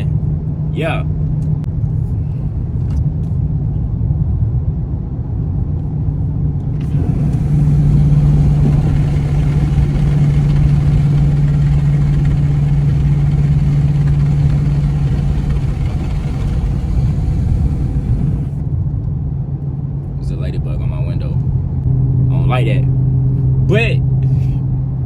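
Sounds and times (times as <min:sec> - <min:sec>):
loud car exhaust drone: 0:06.1 - 0:18.8.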